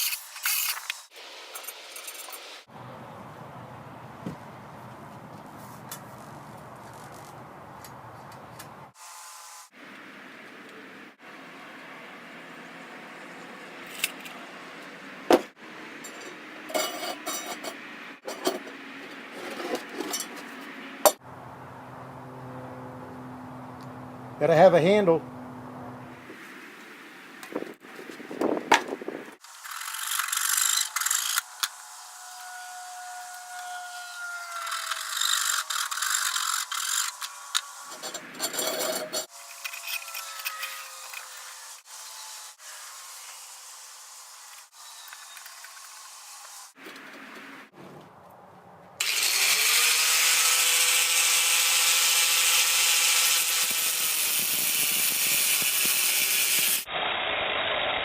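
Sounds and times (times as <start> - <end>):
steel pieces clanking: 0.0 - 2.6, 16.0 - 18.7, 19.4 - 20.6, 34.6 - 41.8
loud rough grinding noise: 34.3 - 43.3, 49.0 - 58.0.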